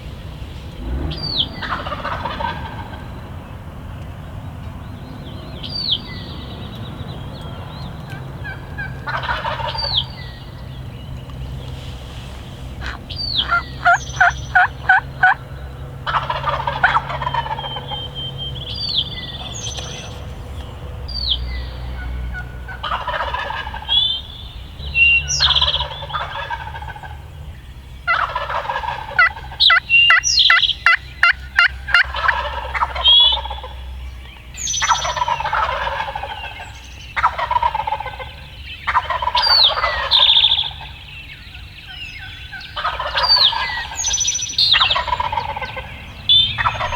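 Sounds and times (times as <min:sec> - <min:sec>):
songbirds chirping: 0:00.0 - 0:46.9
turkeys gobbling: 0:00.6 - 0:04.6, 0:07.3 - 0:46.9.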